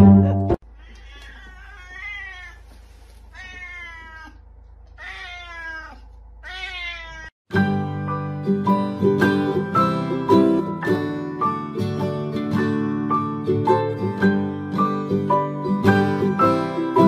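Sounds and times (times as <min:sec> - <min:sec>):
plucked-string music notes: 0:00.0 - 0:00.6, 0:07.5 - 0:17.0
cat meowing: 0:00.6 - 0:07.4.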